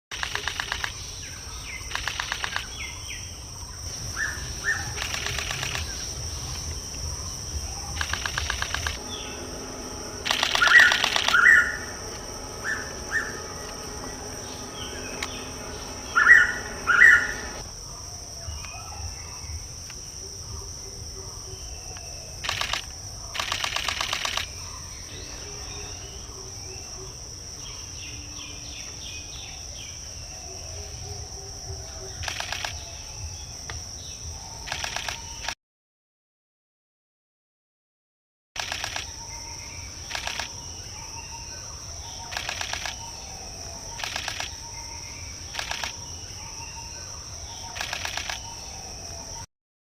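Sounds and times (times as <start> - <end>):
fast clicking rattles: 0.1 - 1.0, 1.9 - 2.8, 4.9 - 6.0, 8.0 - 9.1, 10.2 - 11.6, 22.4 - 24.5, 44.0 - 44.5
high insect drone: 0.1 - 35.6, 38.6 - 49.5.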